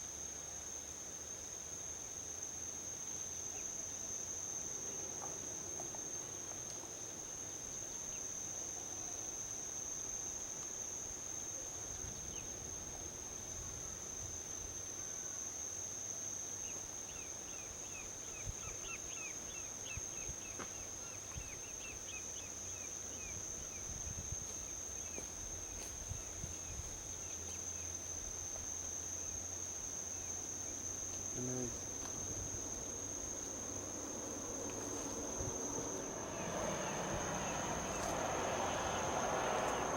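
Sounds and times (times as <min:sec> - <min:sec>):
insects chorus: 0:00.0 - 0:39.9
distant highway traffic: 0:31.7 - 0:39.9.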